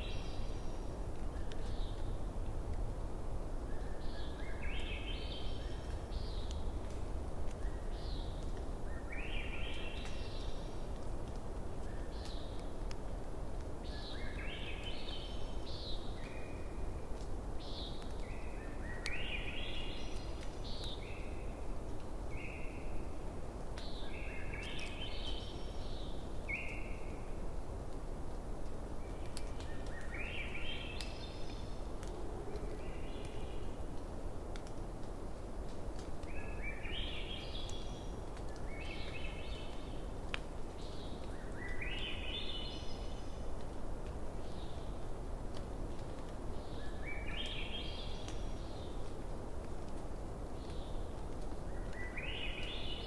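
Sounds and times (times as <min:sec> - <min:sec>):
songbird singing: 0:00.0 - 0:02.3, 0:03.6 - 0:11.0, 0:13.8 - 0:27.5, 0:28.9 - 0:34.0, 0:35.9 - 0:43.7, 0:46.0 - 0:49.2, 0:50.5 - 0:53.0
campfire crackling: 0:10.0 - 0:13.8, 0:30.8 - 0:36.8, 0:37.6 - 0:41.8, 0:42.8 - 0:47.2, 0:48.0 - 0:52.7.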